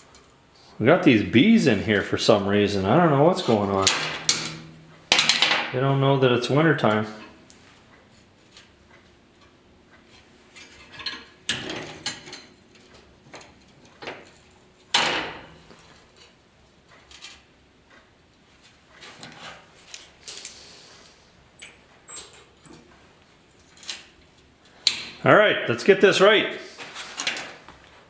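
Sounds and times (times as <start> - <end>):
metal tools clinking on bench: 3.7 - 5.7.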